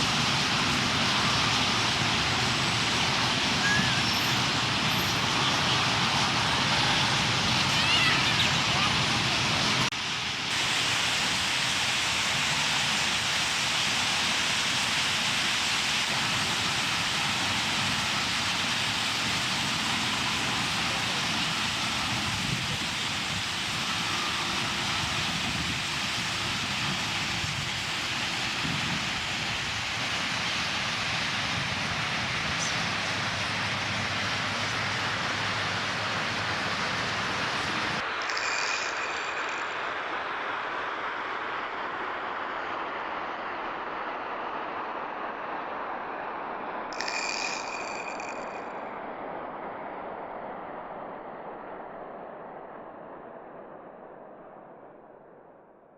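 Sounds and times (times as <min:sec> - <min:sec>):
flock of birds chattering: 0:00.0 - 0:09.9.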